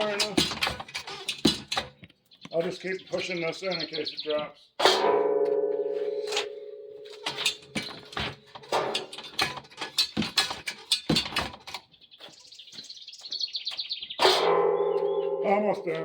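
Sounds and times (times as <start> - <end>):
metal car jack clanking: 0.0 - 2.0, 4.8 - 11.9, 14.2 - 15.6
high chirping: 2.2 - 4.8, 11.9 - 16.0.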